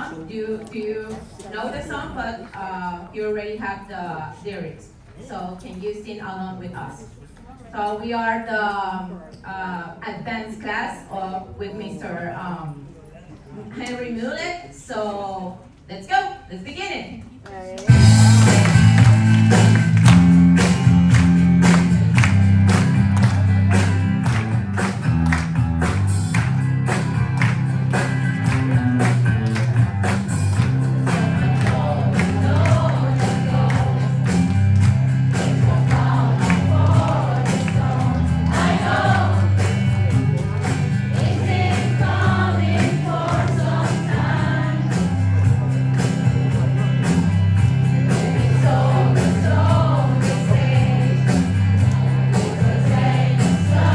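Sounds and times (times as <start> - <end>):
recorded song with beat: 17.9 - 53.9
group singing along: 30.2 - 45.2, 48.0 - 53.9.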